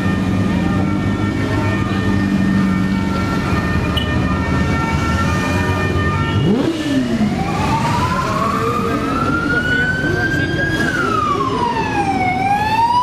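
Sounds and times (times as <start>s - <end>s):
engine noise: 0.0s - 13.0s
siren rising in pitch: 0.0s - 13.0s
vehicle horns held tones: 3.9s - 6.8s.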